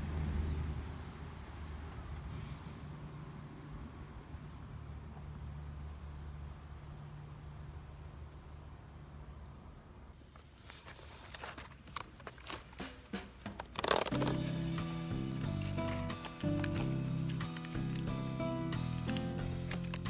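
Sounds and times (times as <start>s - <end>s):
crinkling and crunching of handling: 10.2s - 20.0s
music: 12.8s - 20.0s.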